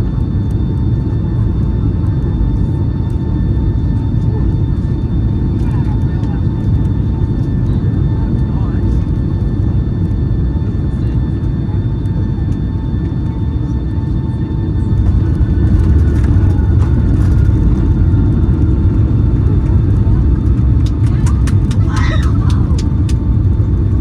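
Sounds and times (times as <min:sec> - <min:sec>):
faint steady whines: 0:00.0 - 0:24.0
low rumble of engines and airflow: 0:00.0 - 0:24.0.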